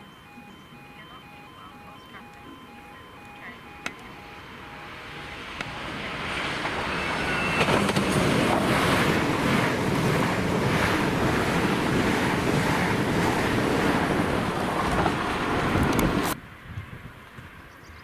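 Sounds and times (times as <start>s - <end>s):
train passing at speed: 0.0s - 16.7s
wind buffeting microphone: 5.4s - 17.9s.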